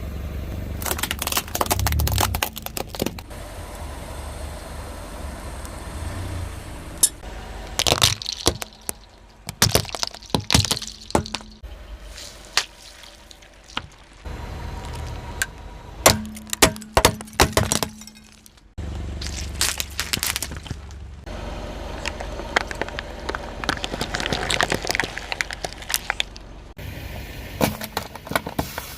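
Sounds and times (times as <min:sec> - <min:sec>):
low tyre rumble: 0:00.0 - 0:28.9
objects cracking under tyre: 0:00.8 - 0:03.3, 0:07.6 - 0:21.3, 0:21.9 - 0:26.7.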